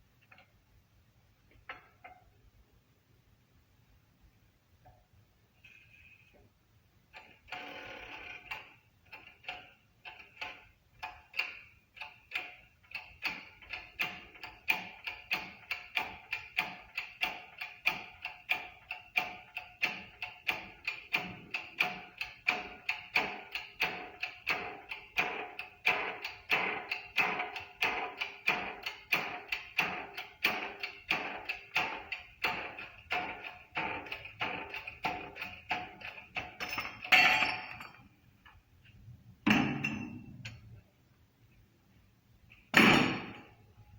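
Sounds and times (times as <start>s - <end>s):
hammer striking metal: 42.7s - 43.6s.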